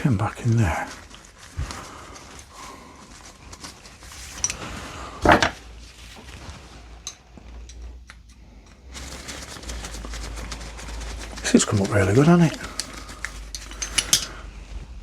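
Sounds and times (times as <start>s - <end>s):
loud metal knock: 5.3s - 5.6s
metal wrench parts clicking: 13.5s - 14.4s.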